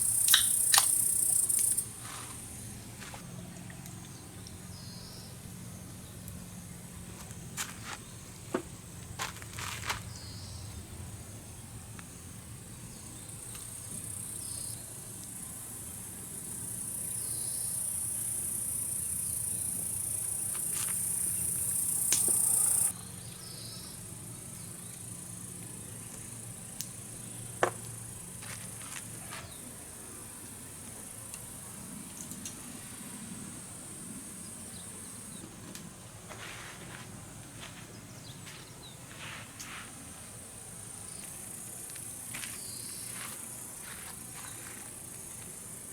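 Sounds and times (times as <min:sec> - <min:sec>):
insects chirring: 0:00.0 - 0:45.9
sharp clicks: 0:00.2 - 0:01.8.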